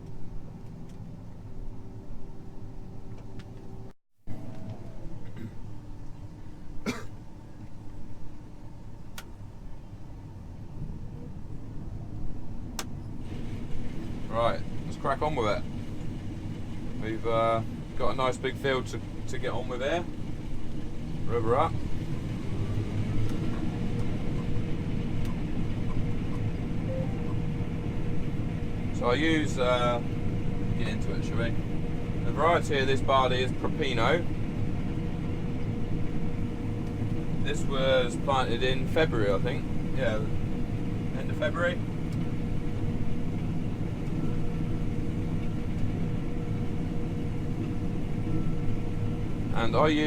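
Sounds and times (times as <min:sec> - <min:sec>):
thin constant whine: 0:00.0 - 0:50.0
combine harvester running: 0:12.7 - 0:50.0.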